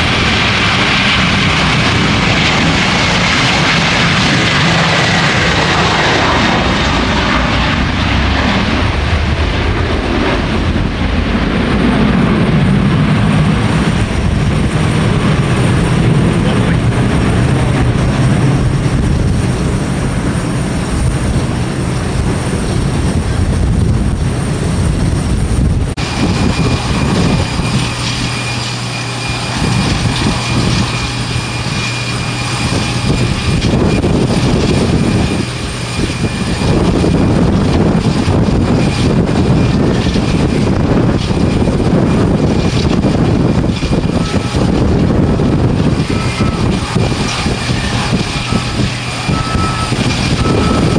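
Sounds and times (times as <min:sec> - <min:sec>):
jet engines roaring: 0:00.0 - 0:50.9
thin high whine: 0:45.9 - 0:50.9.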